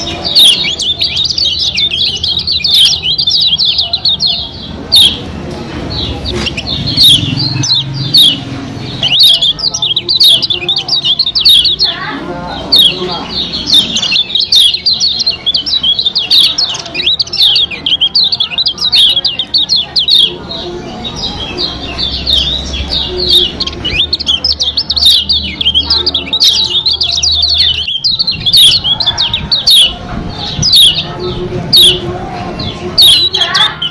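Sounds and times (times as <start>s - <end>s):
bird high twittering chatter: 0.0s - 33.9s.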